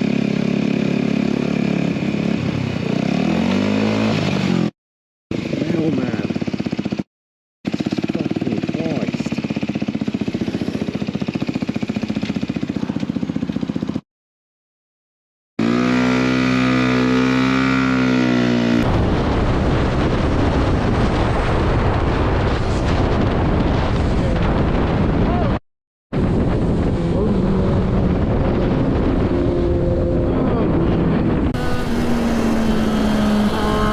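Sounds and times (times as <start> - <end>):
motorcycle engine running: 0.0 - 4.7, 5.3 - 7.1, 7.7 - 14.0, 15.6 - 19.4
wind on microphone: 18.7 - 25.6, 26.2 - 33.9.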